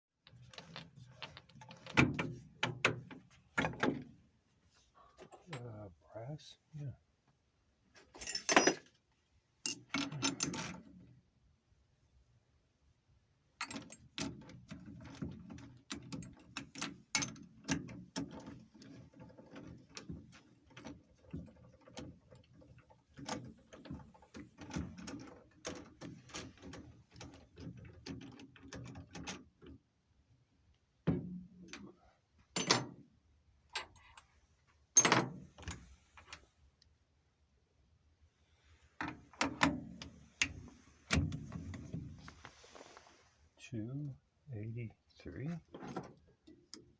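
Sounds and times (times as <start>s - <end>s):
metal parts and tools rattling: 0.3s - 2.8s, 8.1s - 9.0s, 9.6s - 10.9s.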